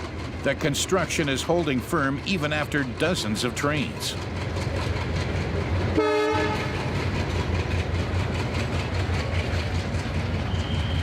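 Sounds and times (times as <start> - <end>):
train rumbling over tracks: 0.0 - 11.0
train horn blast: 6.0 - 6.9.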